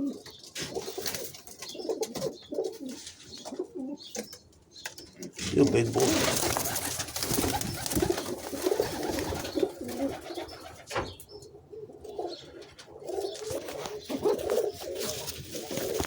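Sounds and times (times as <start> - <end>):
pigeons cooing: 0.0 - 16.0
rustling: 5.4 - 10.1, 13.1 - 16.0.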